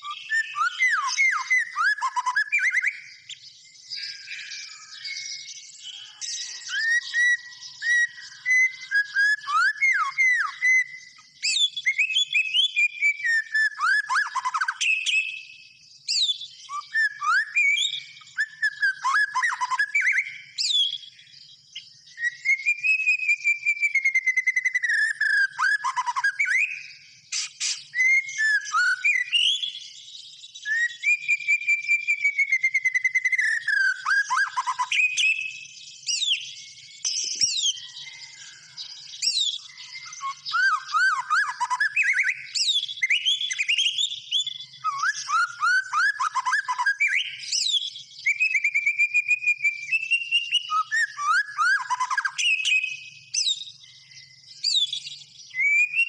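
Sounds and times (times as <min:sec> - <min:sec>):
songbird singing whistled phrases: 0:00.0 - 0:56.0.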